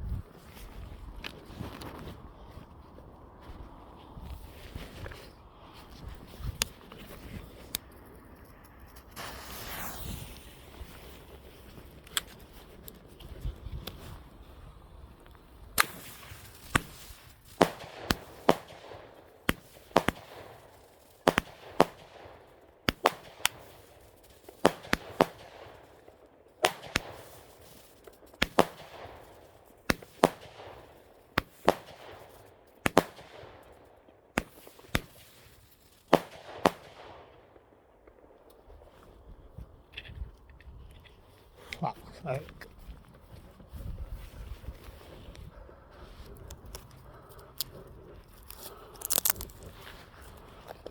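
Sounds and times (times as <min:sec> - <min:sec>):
firework bangs with echo: 0:09.2 - 0:10.3, 0:15.8 - 0:27.8, 0:28.4 - 0:33.8, 0:36.1 - 0:37.3.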